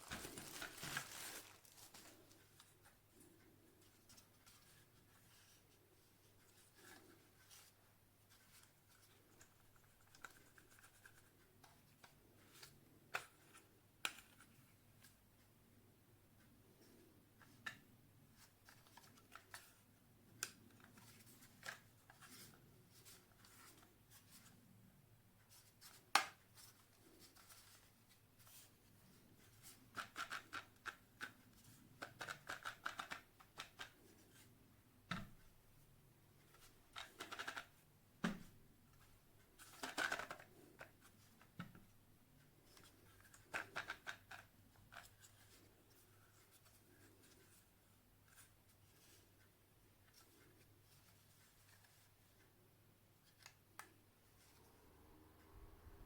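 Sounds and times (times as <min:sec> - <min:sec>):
scratchy rustling: 0:00.0 - 0:02.4.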